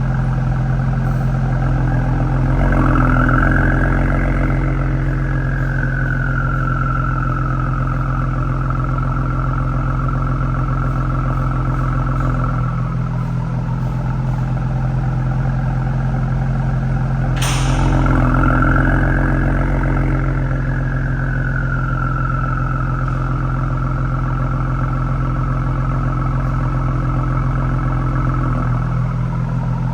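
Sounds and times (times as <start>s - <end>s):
car engine idling: 0.0s - 29.9s
turbo whine: 0.0s - 29.9s
sharp click: 17.4s - 20.1s.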